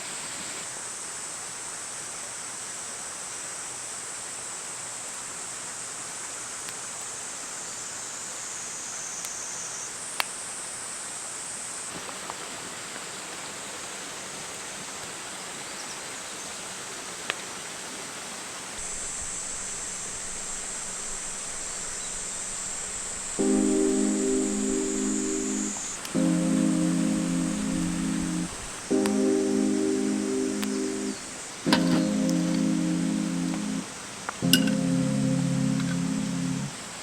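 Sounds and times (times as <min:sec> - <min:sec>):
insect chorus: 0:07.6 - 0:10.1, 0:18.8 - 0:36.8
sharp pops: 0:18.8 - 0:36.7
soft even hiss: 0:18.8 - 0:37.0.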